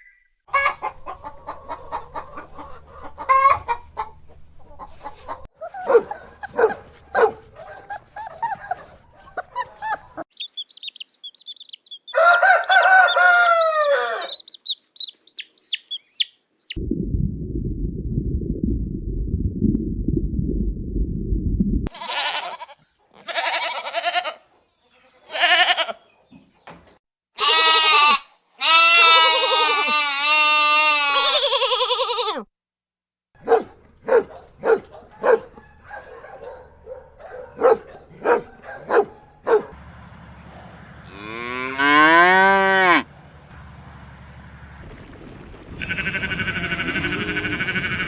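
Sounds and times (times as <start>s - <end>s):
farm animal calls: 0.5s - 16.8s, 45.8s - 48.0s
low rumbling noise: 16.8s - 21.9s, 43.1s - 48.0s
wavering bleat-like cries: 21.9s - 26.0s, 27.4s - 32.5s, 45.8s - 48.0s.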